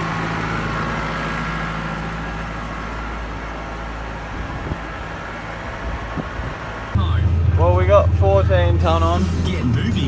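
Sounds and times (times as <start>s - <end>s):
tractor engine humming: 0.0s - 10.0s.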